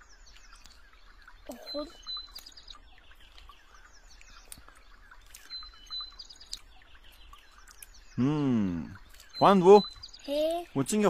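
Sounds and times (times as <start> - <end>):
songbirds chirping: 0.0 - 11.0
bird whistle and quick notes: 8.9 - 10.3.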